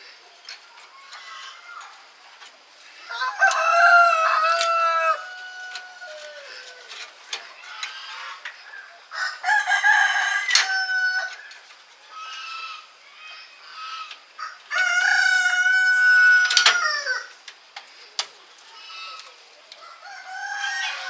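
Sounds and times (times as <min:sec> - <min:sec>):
chicken calls: 0:00.1 - 0:21.0
rooster crowing: 0:03.0 - 0:07.2, 0:09.0 - 0:11.5, 0:14.4 - 0:17.4, 0:19.8 - 0:21.0.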